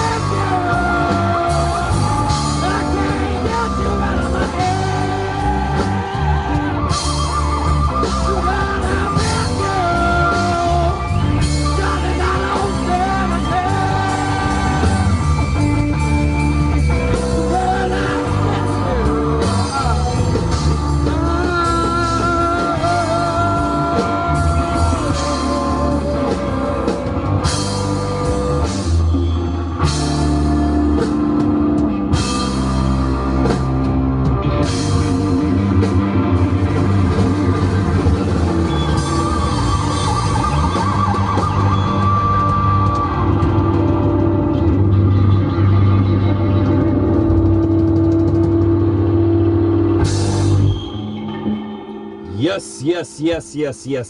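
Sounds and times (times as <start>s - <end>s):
person singing: 0.0s - 16.0s, 17.0s - 27.7s
electric guitar: 0.0s - 52.8s
rock band playing live: 0.0s - 54.0s.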